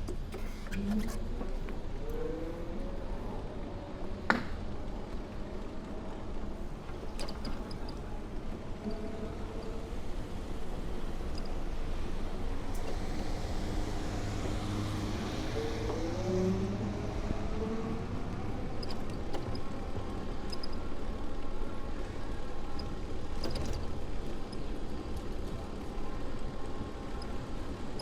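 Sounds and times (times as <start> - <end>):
low traffic rumble: 0.0 - 28.0
motor vehicle accelerating: 1.0 - 4.3, 12.2 - 20.4.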